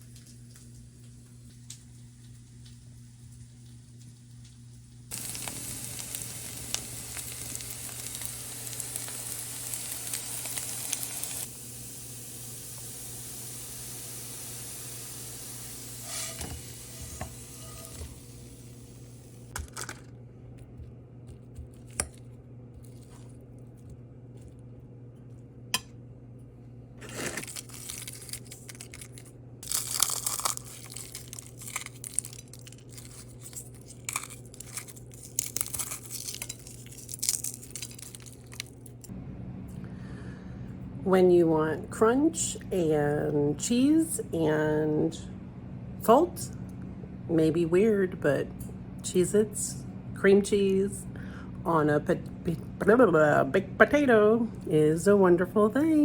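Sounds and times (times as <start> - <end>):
steady hiss: 1.0 - 19.5
packaging crinkling and tearing: 27.0 - 39.1.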